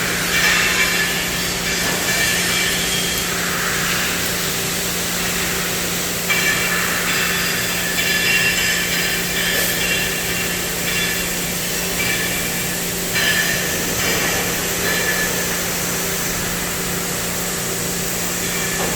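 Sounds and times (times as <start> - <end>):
cnc cutting machine hiss and hum: 0.0 - 18.9.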